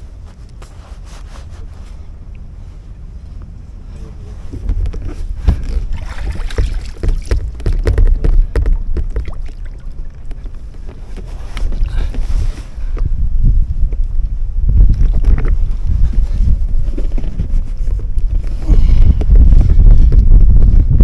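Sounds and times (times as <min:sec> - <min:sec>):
wind buffeting microphone: 0:00.0 - 0:21.0
knocks: 0:04.7 - 0:11.0
water splashes: 0:05.3 - 0:12.0.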